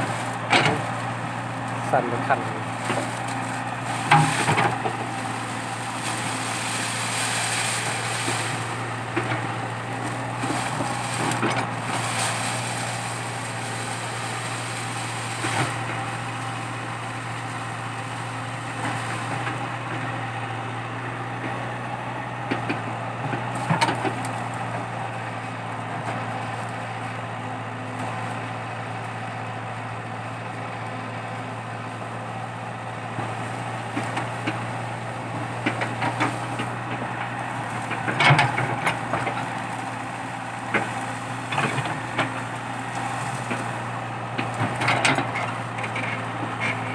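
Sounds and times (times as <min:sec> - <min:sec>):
excavator diesel engine running: 0:00.0 - 0:46.9
wood and roots cracking: 0:00.1 - 0:18.0.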